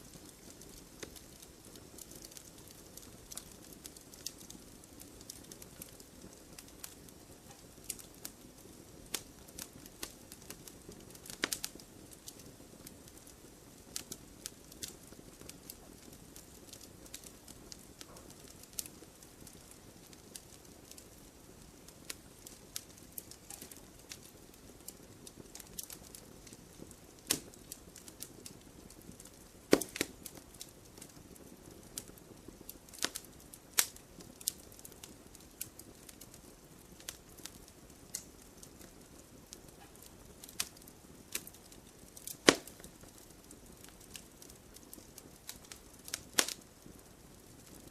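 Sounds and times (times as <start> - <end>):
faint steady hiss: 0.0 - 47.9
wood fire crackling: 0.0 - 47.9
sharp pops and snaps: 22.4 - 24.2, 24.8 - 31.2, 32.9 - 35.0, 37.0 - 38.9, 39.6 - 46.9.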